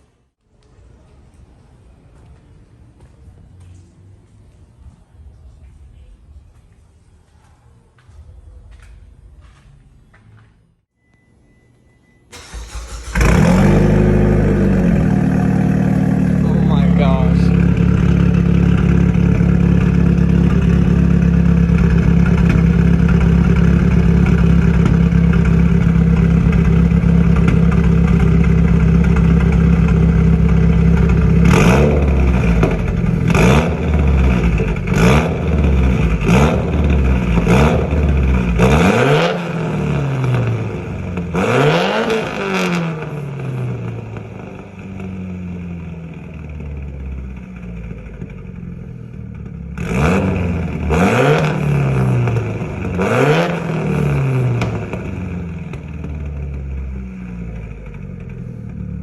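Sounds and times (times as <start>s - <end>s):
engine rev blips: 10.1s - 44.6s
engine idling: 12.3s - 38.8s, 42.5s - 49.8s
car engine running loudly: 12.3s - 59.0s.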